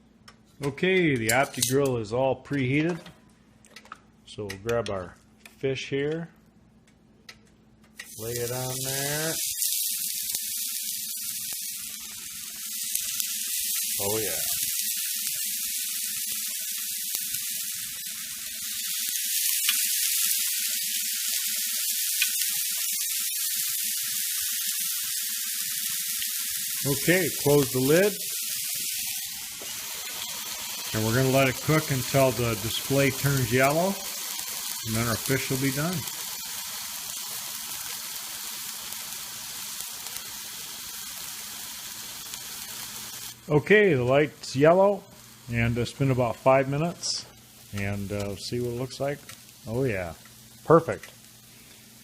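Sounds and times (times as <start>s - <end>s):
crackles: 8.0s - 52.0s
fish sizzling on a grill: 8.1s - 52.0s.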